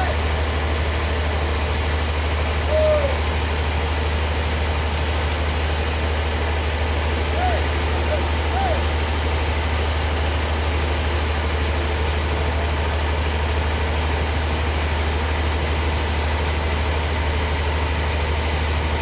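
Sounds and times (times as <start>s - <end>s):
sawmill machine hum and hiss: 0.0s - 19.0s.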